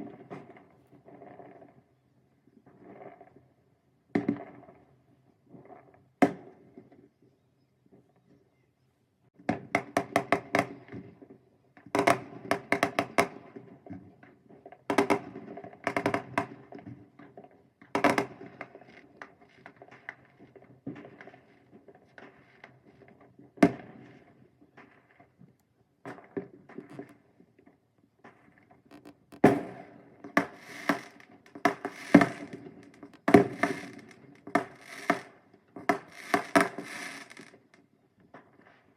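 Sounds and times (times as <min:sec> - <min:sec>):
faint fireworks pops: 0:00.0 - 0:07.1, 0:09.4 - 0:38.9
fireworks crackling bangs: 0:28.9 - 0:37.8.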